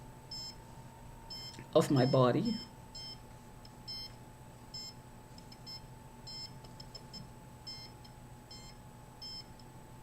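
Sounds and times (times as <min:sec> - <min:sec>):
rf meter high-pitched beeps: 0:00.3 - 0:00.6, 0:01.3 - 0:03.2, 0:03.9 - 0:09.5.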